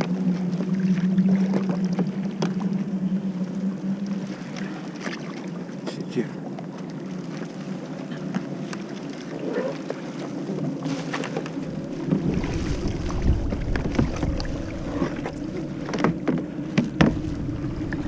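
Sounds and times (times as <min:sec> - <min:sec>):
water sloshing: 0:00.0 - 0:18.0
wind rumbling on microphone: 0:00.0 - 0:18.0
knocks on kayak: 0:15.9 - 0:17.2.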